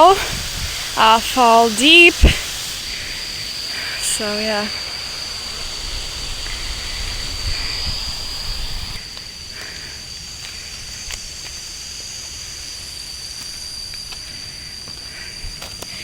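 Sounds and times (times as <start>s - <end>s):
rushing water: 0.0s - 9.0s
low wind rumble: 0.0s - 9.5s
high-pitched insect drone: 0.0s - 16.0s.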